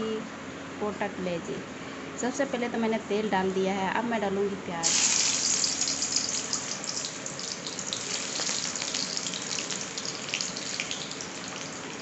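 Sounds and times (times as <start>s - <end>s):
onions sizzling in oil: 4.8s - 12.0s.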